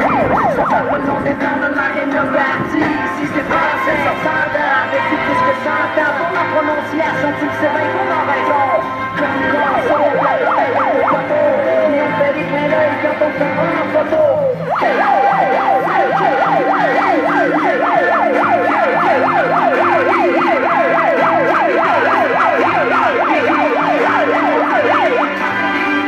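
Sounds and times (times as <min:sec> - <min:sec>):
music playing: 0:00.0 - 0:26.0
police car siren: 0:00.0 - 0:26.0.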